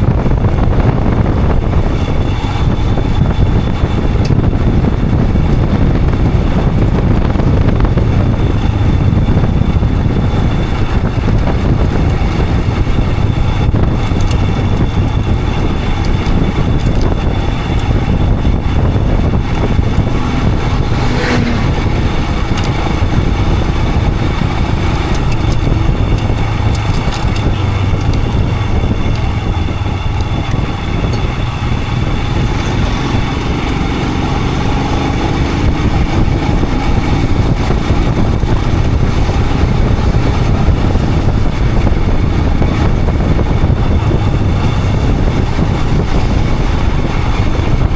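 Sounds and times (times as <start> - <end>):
motorcycle engine running: 0.0 - 47.9
rushing noise: 16.4 - 47.9.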